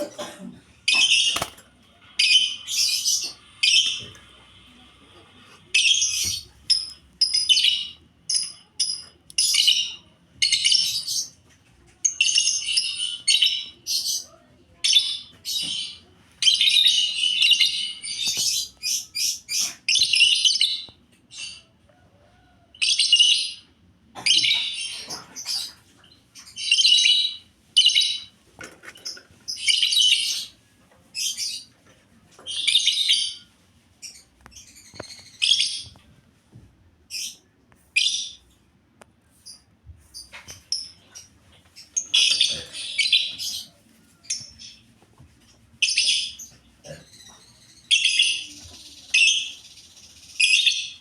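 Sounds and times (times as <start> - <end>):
lovebirds chirping: 0.8 - 4.2, 39.3 - 44.9.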